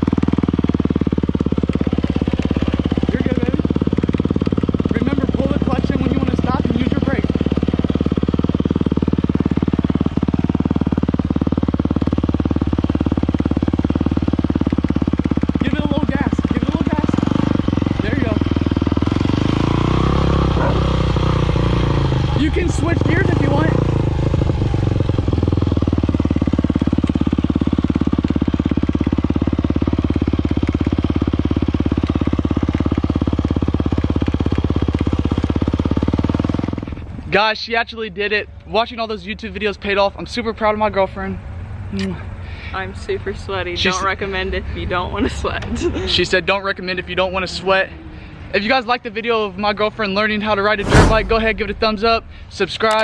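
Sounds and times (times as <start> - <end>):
dirt bike engine idling: 0.0 - 41.2.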